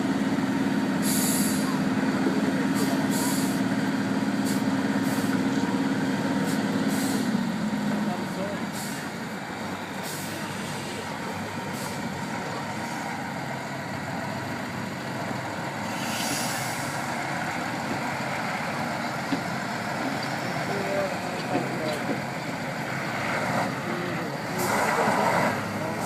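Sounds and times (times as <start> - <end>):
truck engine running: 0.0 - 26.0
brief hiss: 15.9 - 16.9.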